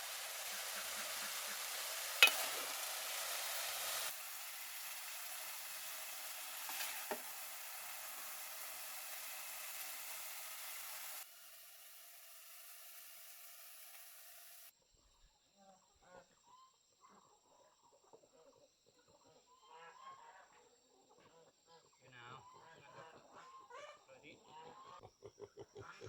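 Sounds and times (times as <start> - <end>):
food sizzling in a pan: 0.0 - 14.7.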